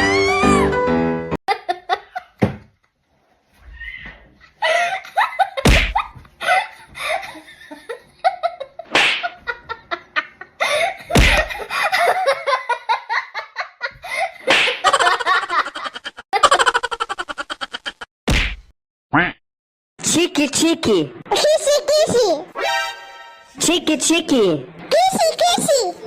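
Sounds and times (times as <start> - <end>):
person laughing and giggling: 1.5 - 2.4, 4.5 - 18.1.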